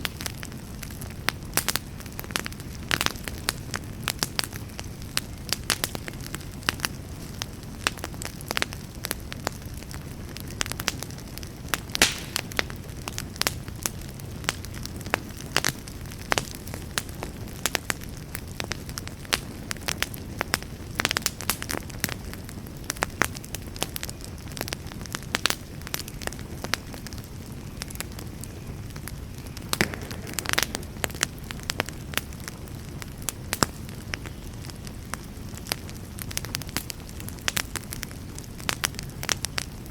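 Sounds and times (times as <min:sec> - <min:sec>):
campfire flame rushing: 0:00.0 - 0:39.9
wood popping and crackling: 0:00.0 - 0:39.9.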